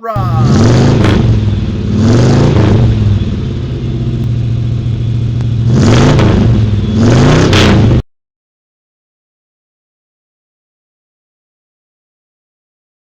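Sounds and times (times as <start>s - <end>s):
car engine idling and revving: 0.6s - 8.0s.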